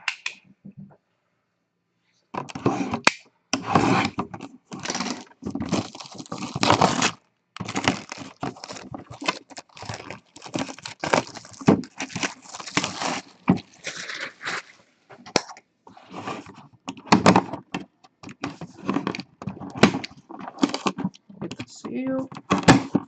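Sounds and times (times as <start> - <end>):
packaging crinkling and tearing: 4.7 - 15.4, 19.0 - 21.2.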